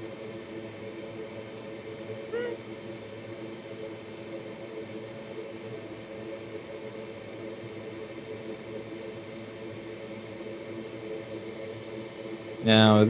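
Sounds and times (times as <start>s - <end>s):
small fan whirring: 0.0s - 13.0s
low even hum: 12.4s - 13.0s.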